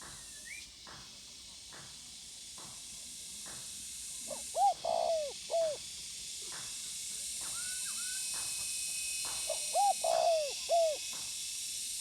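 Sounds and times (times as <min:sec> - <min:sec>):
dove cooing: 0:04.4 - 0:05.8, 0:09.5 - 0:11.0.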